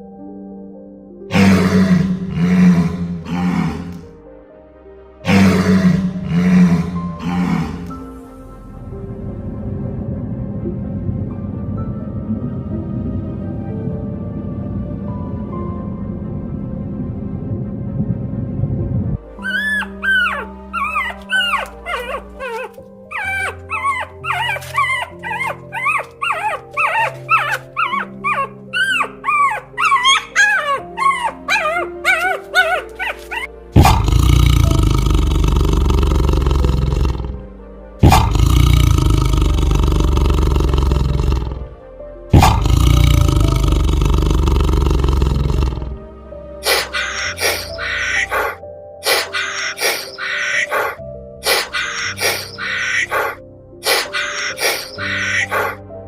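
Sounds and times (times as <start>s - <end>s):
background music: 0.0s - 56.0s
animal calls: 1.3s - 4.1s, 5.2s - 8.1s, 19.4s - 37.4s, 38.0s - 41.7s, 42.3s - 46.0s, 46.6s - 55.8s.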